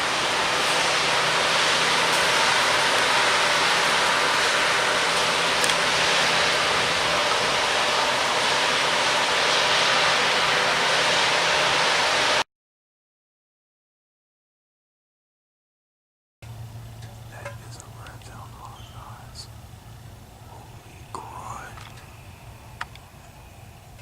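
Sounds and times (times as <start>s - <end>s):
loud steady hiss: 0.0s - 12.4s, 16.4s - 24.0s
faint low hum: 16.4s - 24.0s.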